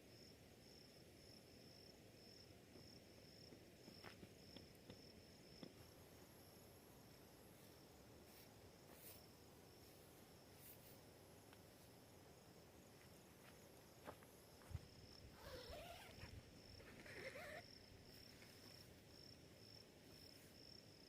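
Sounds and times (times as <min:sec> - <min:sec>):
crickets trilling: 0:00.1 - 0:21.0.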